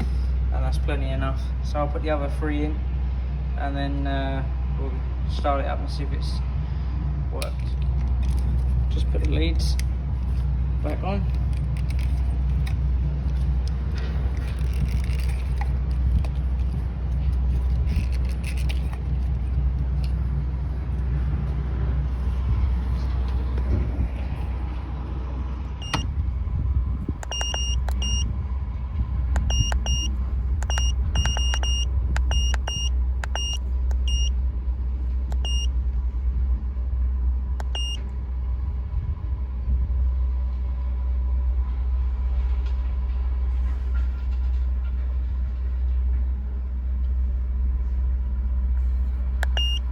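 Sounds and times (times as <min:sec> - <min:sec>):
car engine idling: 0:00.0 - 0:49.9
short high electronic beeps: 0:27.3 - 0:28.3, 0:29.4 - 0:34.3.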